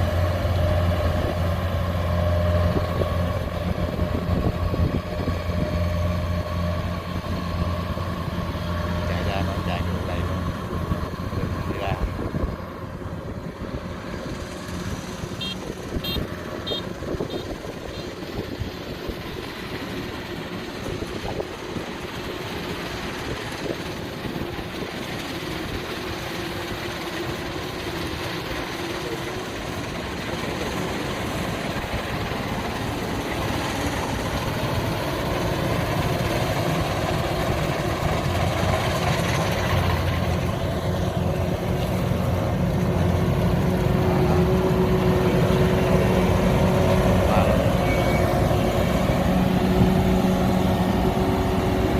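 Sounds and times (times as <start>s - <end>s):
combine harvester diesel engine: 0.0s - 51.9s
short high chirps: 47.8s - 48.4s.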